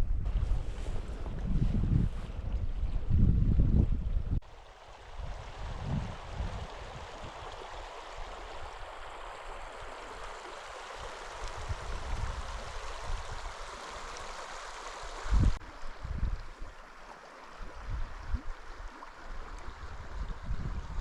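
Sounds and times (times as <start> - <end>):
river water flowing over rocks: 4.4 - 21.0.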